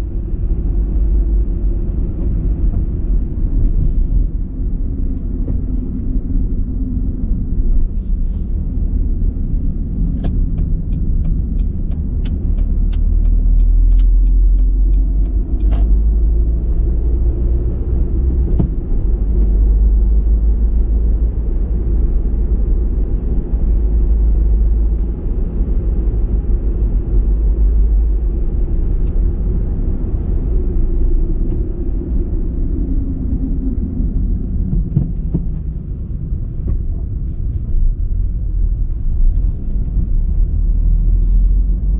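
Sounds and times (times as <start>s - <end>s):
car engine and road noise: 0.0s - 41.9s
even ticks: 10.2s - 15.9s.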